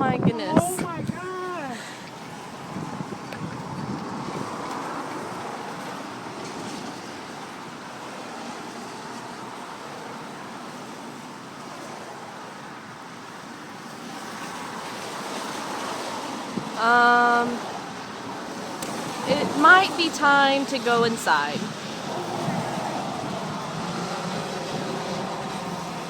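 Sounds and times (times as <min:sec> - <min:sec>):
storm wind rushing: 0:02.3 - 0:06.4, 0:20.9 - 0:26.0.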